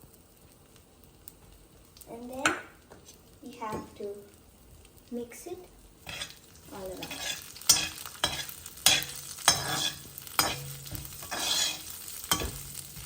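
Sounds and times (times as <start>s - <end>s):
spices frying in hot oil: 0.0s - 13.0s
metal ladle scraping a pan: 6.0s - 13.0s.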